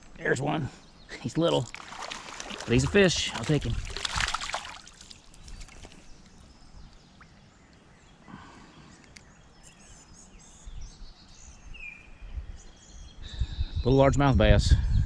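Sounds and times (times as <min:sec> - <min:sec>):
small birds chirping: 0:00.0 - 0:15.0
creek ambience: 0:00.1 - 0:10.2
faint clicks: 0:09.0 - 0:09.8.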